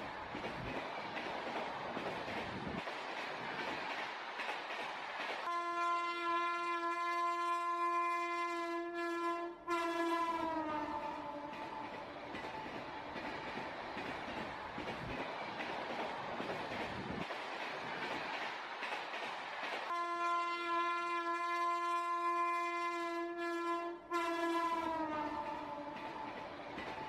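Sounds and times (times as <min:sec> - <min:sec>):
train horn: 0:05.4 - 0:12.0, 0:19.9 - 0:26.3.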